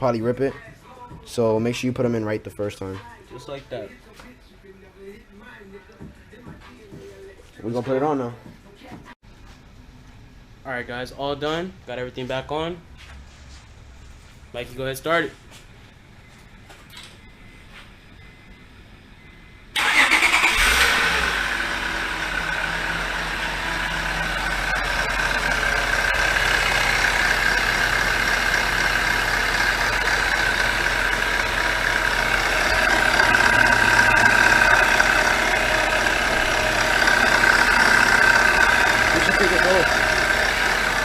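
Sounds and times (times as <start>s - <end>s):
car engine starting and idling: 19.7s - 41.0s
high whine: 21.2s - 41.0s.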